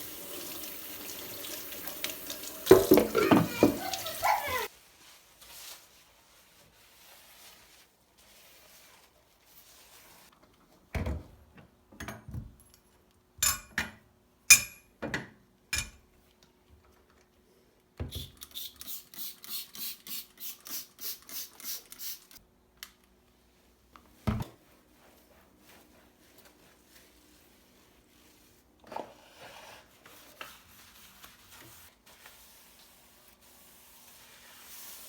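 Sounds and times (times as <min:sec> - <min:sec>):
dishes clinking: 0:13.4 - 0:14.9.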